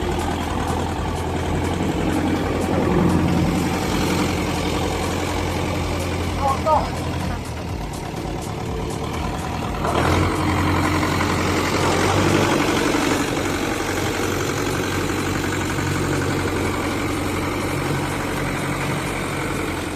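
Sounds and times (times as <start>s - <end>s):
tractor diesel engine running: 0.0s - 19.9s.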